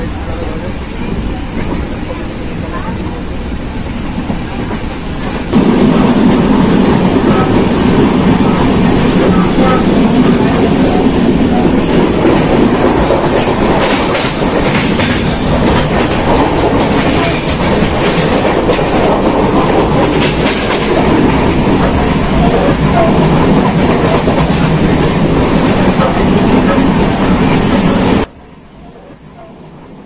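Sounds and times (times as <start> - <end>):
train wheels rumbling on rails: 0.0 - 30.0
wheels clattering over rail joints: 6.5 - 28.0.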